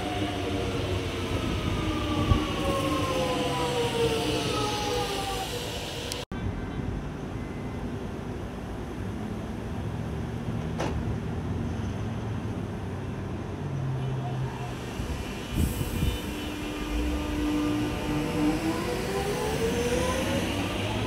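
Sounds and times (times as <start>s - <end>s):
train rumbling: 0.0s - 7.2s, 14.5s - 21.0s.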